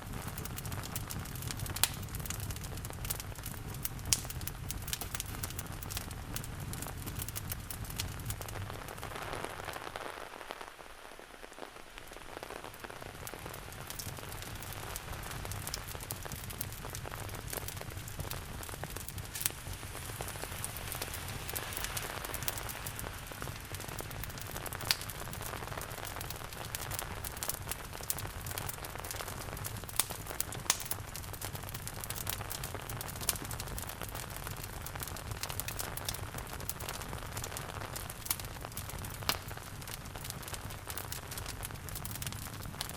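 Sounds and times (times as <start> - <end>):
steady rain hissing: 0.0 - 42.9
wood fire crackling: 0.0 - 42.9.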